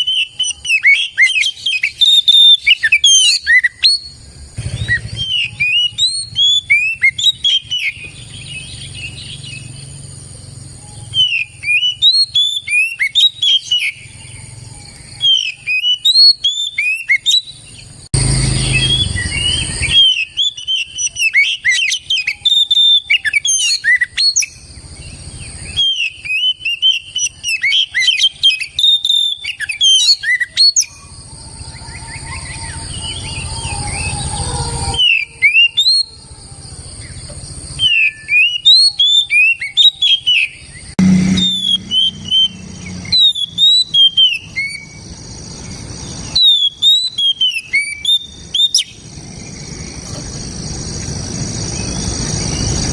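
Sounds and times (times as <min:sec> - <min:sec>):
bird singing whistled song: 0:00.0 - 0:36.2, 0:36.9 - 0:52.9
high-pitched hum: 0:40.7 - 0:46.4.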